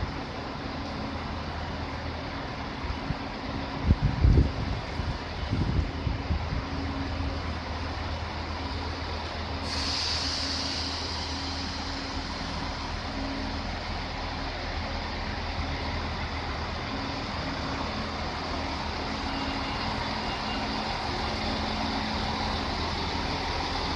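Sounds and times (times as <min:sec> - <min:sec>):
passenger train humming: 0:00.0 - 0:23.9
high hiss: 0:09.6 - 0:12.9.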